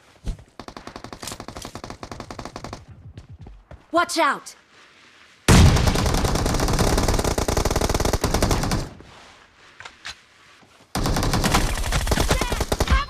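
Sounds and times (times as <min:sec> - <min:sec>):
video game automatic gunfire: 0:05.5 - 0:08.9, 0:11.0 - 0:13.0.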